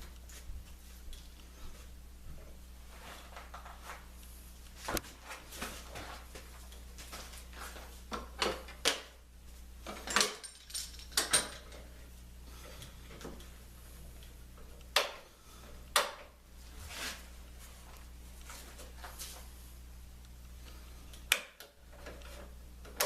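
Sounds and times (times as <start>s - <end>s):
steady low hum: 0.0s - 23.0s
tools and wood clicking and knocking: 8.1s - 9.1s, 9.8s - 11.9s.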